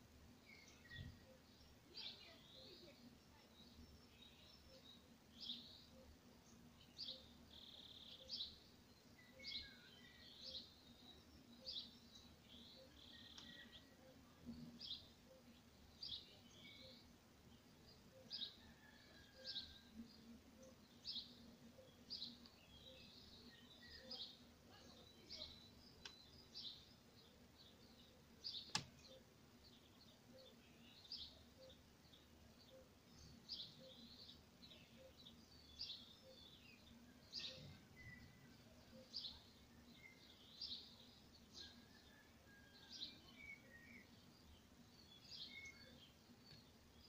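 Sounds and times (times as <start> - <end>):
faint steady hum: 0.0 - 47.0
bird chirping: 0.3 - 47.0
sharp click: 28.6 - 29.1.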